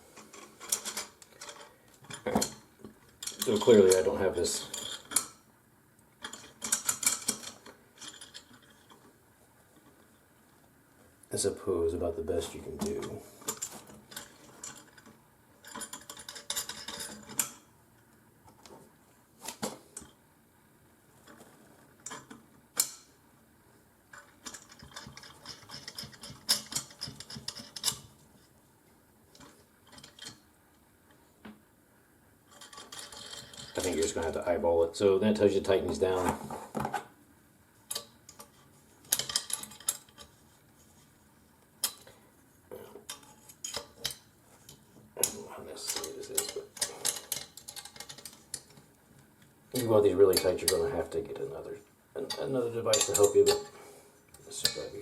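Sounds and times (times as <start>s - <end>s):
small metal parts clicking: 3.2s - 5.4s, 6.2s - 9.0s, 13.5s - 17.6s, 24.1s - 28.1s, 29.4s - 30.4s, 32.5s - 33.9s, 37.9s - 40.4s, 43.1s - 48.8s.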